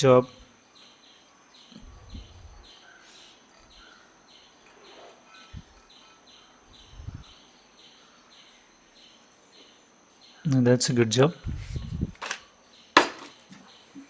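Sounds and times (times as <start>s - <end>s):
insect chirping: 0.0s - 14.0s
soft low thuds: 1.8s - 2.6s, 6.8s - 7.3s, 11.4s - 12.2s.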